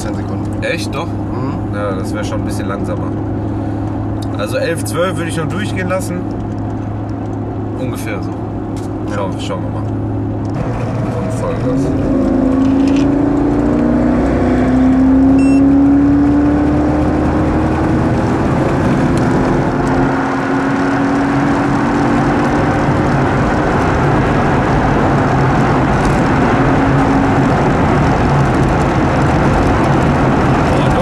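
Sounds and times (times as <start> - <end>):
engine at full throttle: 0.0 - 31.0
wind and tyre noise: 0.0 - 31.0.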